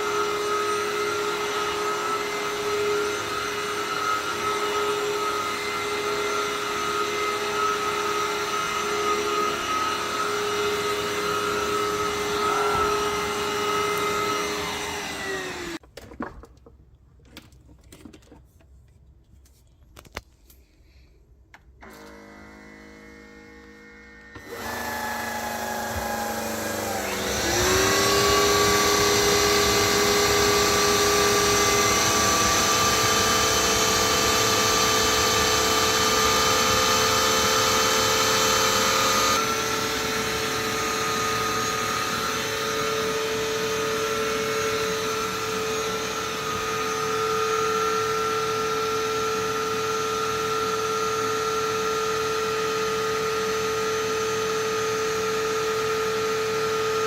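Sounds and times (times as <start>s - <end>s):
vacuum cleaner motor whining: 0.0s - 15.8s, 21.8s - 57.0s.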